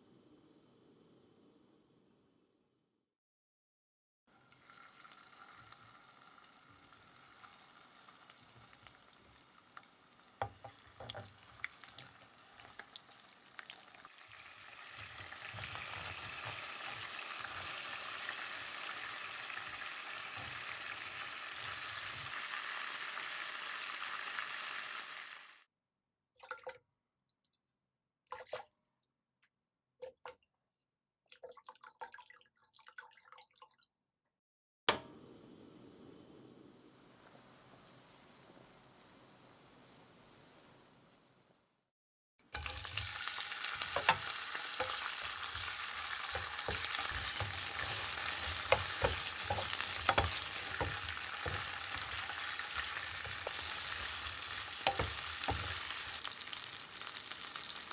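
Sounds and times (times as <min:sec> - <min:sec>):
food simmering in a pan: 0:04.3 - 0:25.6, 0:42.5 - 0:57.9
loud sizzling: 0:42.6 - 0:57.9.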